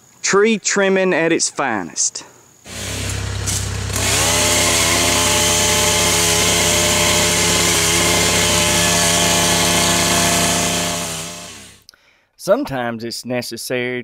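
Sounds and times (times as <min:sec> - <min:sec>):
chainsaw cutting at high revs: 0:02.7 - 0:11.8.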